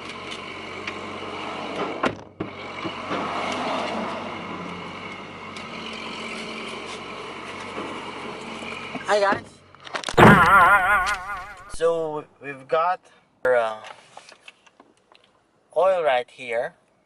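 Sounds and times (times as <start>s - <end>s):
motor vehicle noise: 0.0s - 12.1s
sharp knock: 10.2s - 11.8s.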